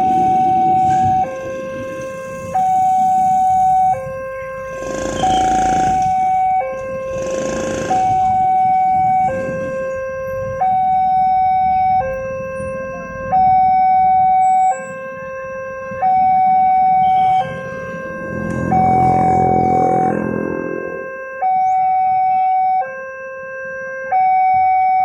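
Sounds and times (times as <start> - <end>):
two-tone crossing alarm: 0.0 - 25.0
low rumble: 17.5 - 21.1.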